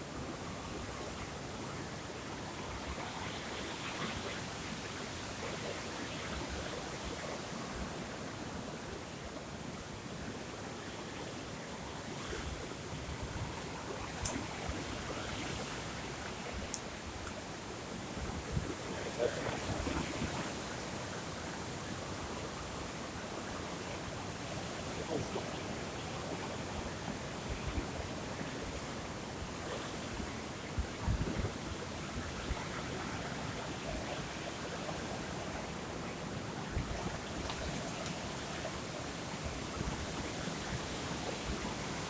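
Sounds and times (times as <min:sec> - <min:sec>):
sea surf: 0:00.0 - 0:42.0
wind buffeting microphone: 0:11.8 - 0:42.0.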